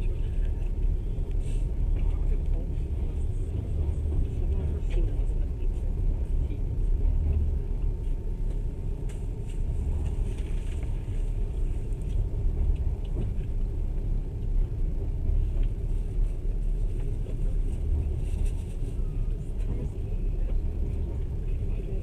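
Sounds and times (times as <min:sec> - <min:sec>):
train rumble inside carriage: 0:00.0 - 0:22.0.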